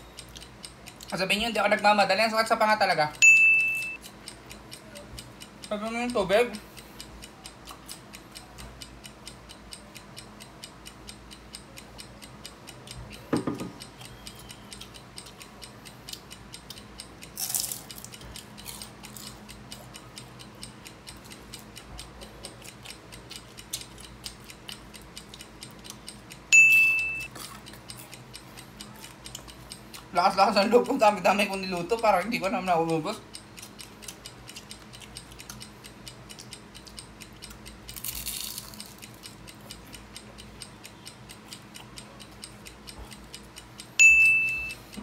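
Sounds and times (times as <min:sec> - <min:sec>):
countdown timer ticking: 0:00.0 - 0:45.0
short high beep: 0:03.2 - 0:04.0, 0:26.6 - 0:27.3, 0:44.0 - 0:44.8.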